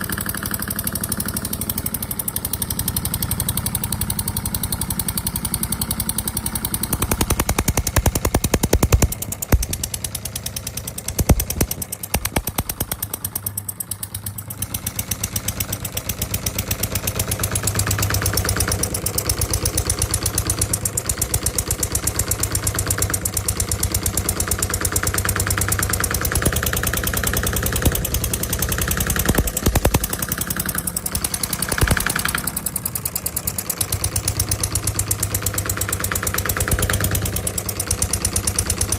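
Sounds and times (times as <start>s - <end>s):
small model diesel engine running: 0.0s - 38.9s.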